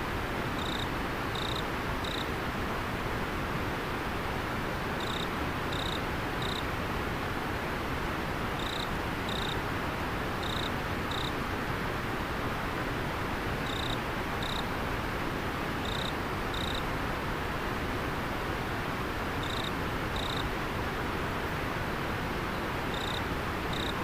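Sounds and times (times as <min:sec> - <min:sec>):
insect chirping: 0:00.6 - 0:02.2, 0:05.0 - 0:06.6, 0:08.6 - 0:09.6, 0:10.4 - 0:11.3, 0:13.6 - 0:14.6, 0:15.8 - 0:16.8, 0:19.4 - 0:20.4, 0:22.9 - 0:24.0.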